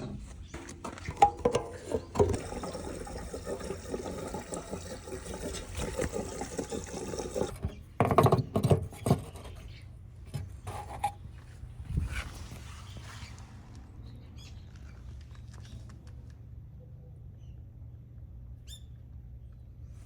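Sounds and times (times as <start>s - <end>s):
liquid pouring: 2.2s - 7.5s.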